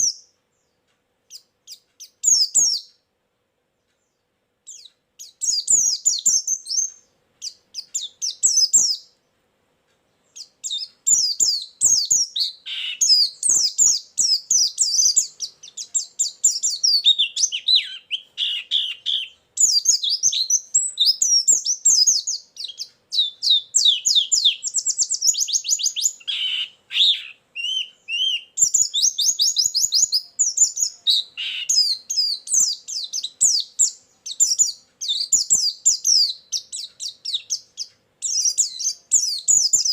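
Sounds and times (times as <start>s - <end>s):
bird chattering song: 0.0s - 3.1s, 3.8s - 9.3s, 10.0s - 39.9s
bird rapid trill: 10.4s - 39.9s.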